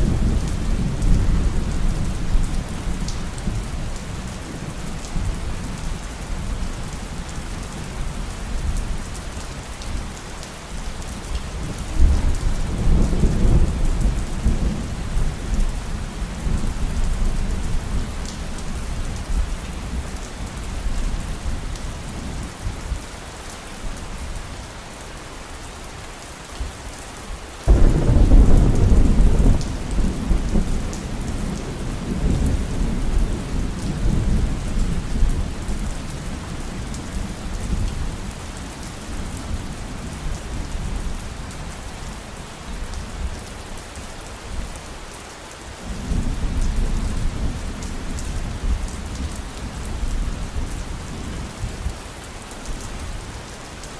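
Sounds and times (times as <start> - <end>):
heavy rain falling: 0.0 - 53.9
thunder rolling: 27.7 - 30.9.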